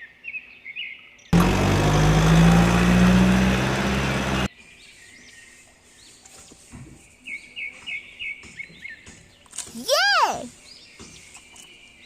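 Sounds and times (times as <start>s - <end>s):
diesel engine running: 1.4s - 4.5s.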